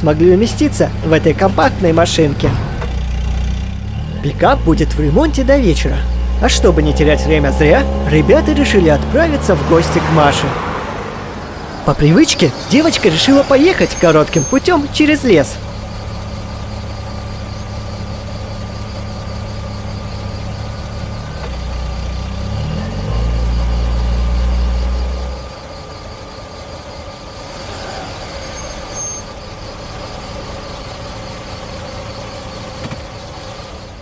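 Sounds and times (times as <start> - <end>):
car engine revving: 0.0 - 25.8.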